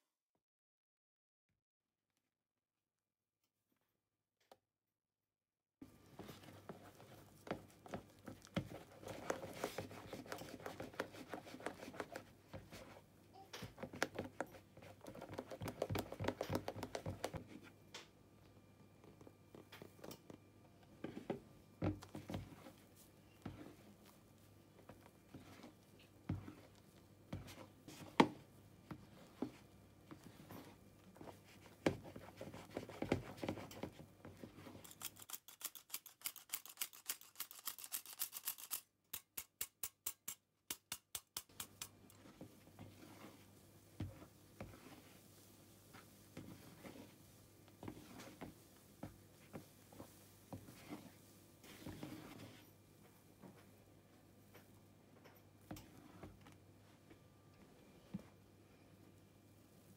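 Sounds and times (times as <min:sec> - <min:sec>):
wet squelches of folding batter: 0:05.8 - 0:18.0, 0:18.6 - 0:36.0, 0:41.4 - 0:54.9
spatula scraping and tapping bowl: 0:13.6 - 0:17.6, 0:39.2 - 0:43.4.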